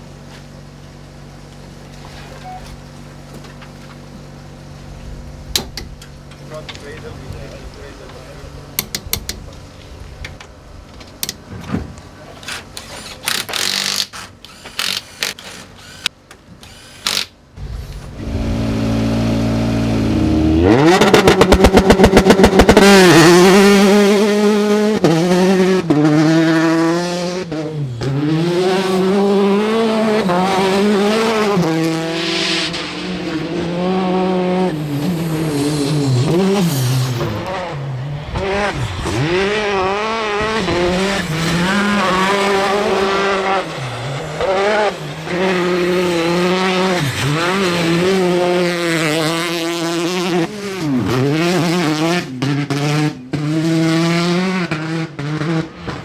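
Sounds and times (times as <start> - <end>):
rally car engine revving: 17.6 - 56.0.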